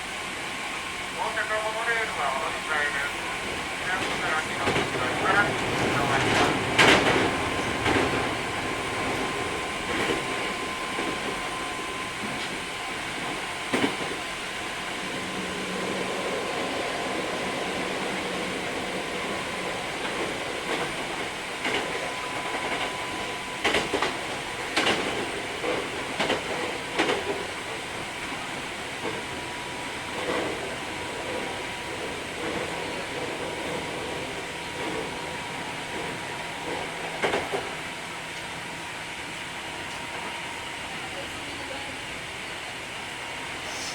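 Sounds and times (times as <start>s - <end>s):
train wheels rumbling on rail: 0.0s - 43.9s
wheels clacking over rail joints: 3.9s - 11.4s, 35.9s - 37.8s.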